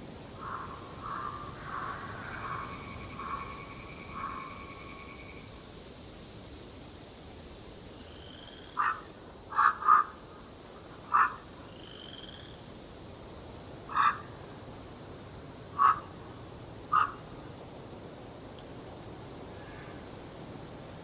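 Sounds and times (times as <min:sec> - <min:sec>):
faint steady hiss: 0:00.0 - 0:21.0
animal croaking calls: 0:00.4 - 0:04.9, 0:08.8 - 0:10.2, 0:11.1 - 0:11.4, 0:13.9 - 0:14.3, 0:15.8 - 0:16.1, 0:16.9 - 0:17.2
faint rising whistles: 0:02.3 - 0:05.6.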